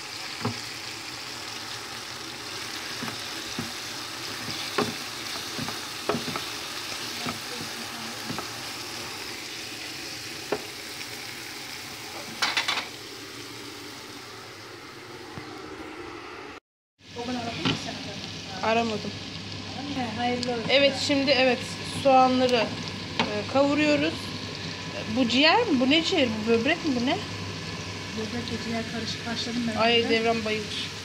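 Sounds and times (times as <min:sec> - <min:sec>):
food sizzling in oil: 0:00.0 - 0:15.1, 0:17.0 - 0:31.0
utensil tapping and scraping pan: 0:02.9 - 0:08.6.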